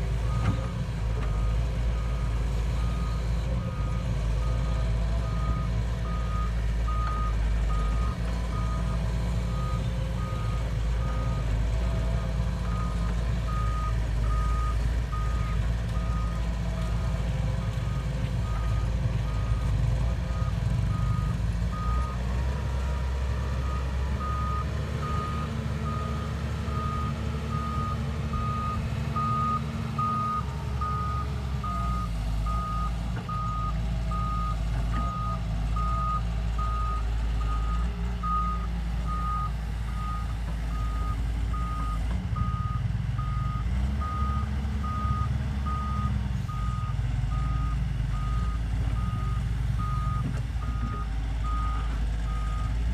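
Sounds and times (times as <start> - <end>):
engine low rumble: 0.0 - 52.9
reversing alarm beeping: 23.6 - 52.7.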